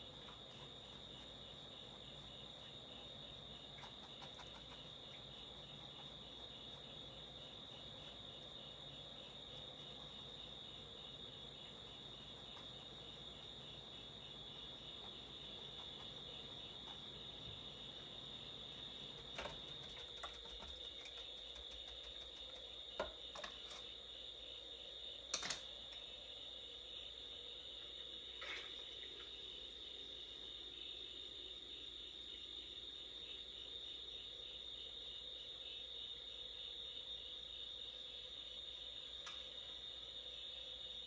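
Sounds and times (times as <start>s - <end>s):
cricket trilling: 0.0s - 41.0s.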